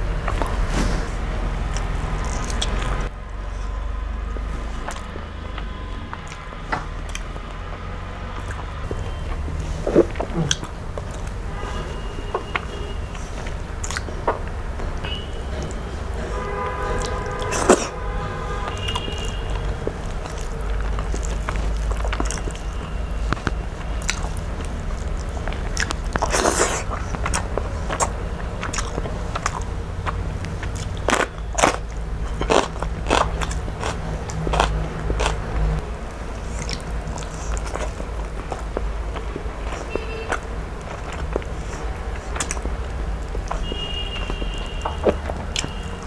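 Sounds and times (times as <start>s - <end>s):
chewing and biting food: 0.0s - 18.0s, 18.6s - 46.0s.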